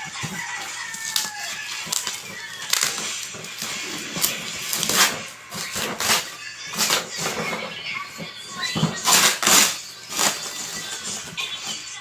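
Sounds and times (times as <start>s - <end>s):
packaging rustling and clicking: 0.0s - 7.7s, 8.7s - 11.7s.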